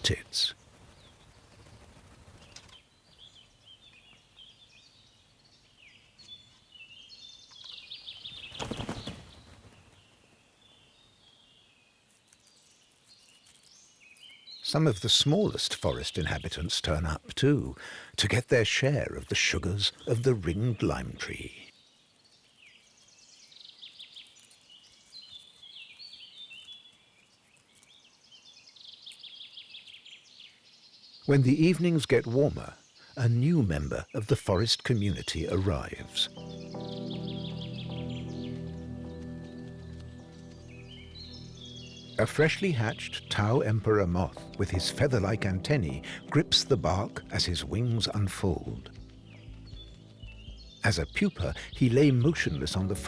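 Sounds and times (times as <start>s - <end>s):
birds chirping: 0.0s - 11.6s, 14.2s - 22.0s, 28.6s - 53.0s
rustling: 12.1s - 14.3s.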